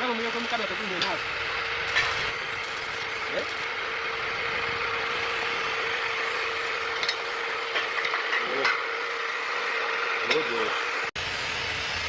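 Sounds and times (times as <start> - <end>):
machine humming: 0.0 - 12.0
hiss: 10.6 - 12.0.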